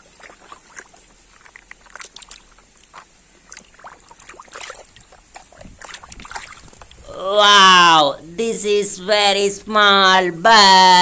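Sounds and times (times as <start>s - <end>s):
water sloshing: 0.0s - 8.0s.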